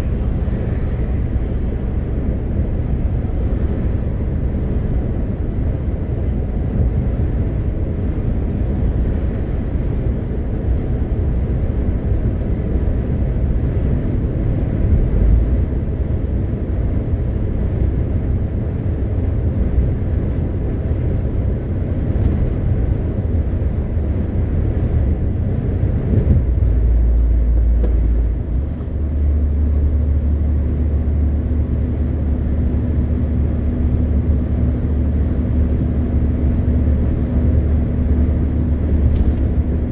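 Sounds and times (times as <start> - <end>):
truck diesel engine rumble: 0.0 - 39.9
tyre and road noise: 10.6 - 39.9.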